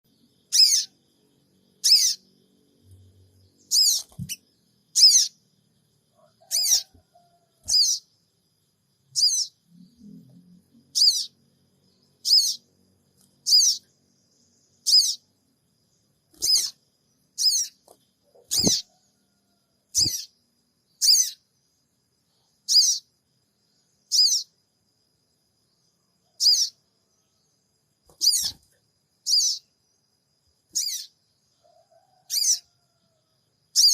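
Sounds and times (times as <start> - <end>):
bird sharp high-pitched calls: 0.4 - 1.0, 1.8 - 2.3, 3.6 - 5.4, 6.4 - 7.0, 7.6 - 8.1, 9.1 - 9.6, 10.9 - 11.4, 12.1 - 12.7, 13.4 - 14.0, 14.7 - 15.3, 16.3 - 19.0, 19.9 - 20.4, 21.0 - 21.4, 22.7 - 23.1, 24.0 - 24.6, 26.3 - 26.8, 28.1 - 28.6, 29.2 - 29.7, 30.7 - 31.2, 32.3 - 32.7.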